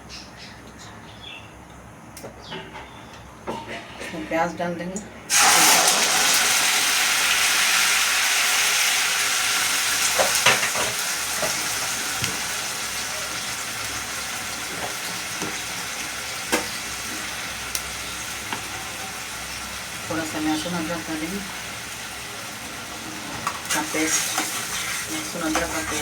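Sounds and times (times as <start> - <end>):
onions sizzling in hot oil: 5.3 - 26.0.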